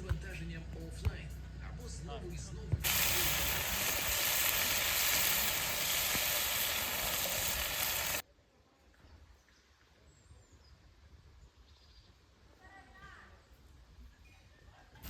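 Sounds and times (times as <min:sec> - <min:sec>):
food sizzling in a pan: 0:02.8 - 0:08.2.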